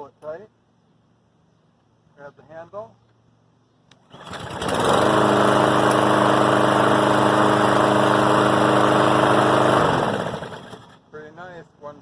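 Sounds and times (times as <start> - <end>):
lawn mower engine running: 4.0 - 11.1.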